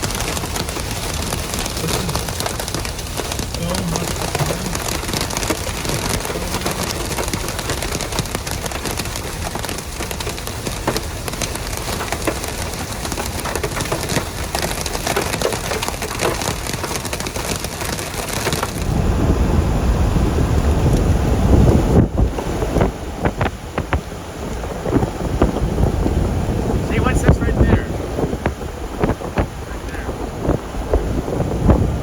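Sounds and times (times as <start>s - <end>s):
hail and rain on a vehicle: 0.0s - 32.0s
wind on microphone: 0.0s - 32.0s.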